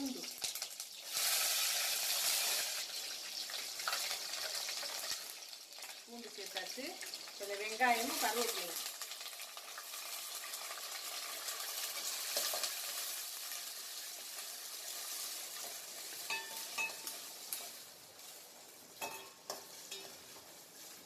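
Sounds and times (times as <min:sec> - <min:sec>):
onion sizzling in hot oil: 0:00.0 - 0:21.0
ladle clinking against pan: 0:16.3 - 0:17.1, 0:19.0 - 0:20.2.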